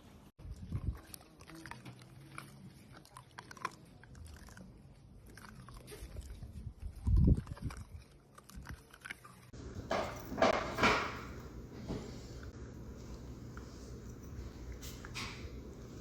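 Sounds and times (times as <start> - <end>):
dog chewing crunchy food: 0.4 - 9.6.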